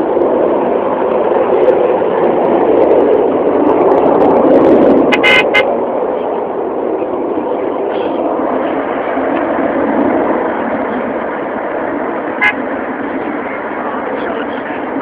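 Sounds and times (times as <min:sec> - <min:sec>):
jet engine rushing: 0:00.0 - 0:15.0.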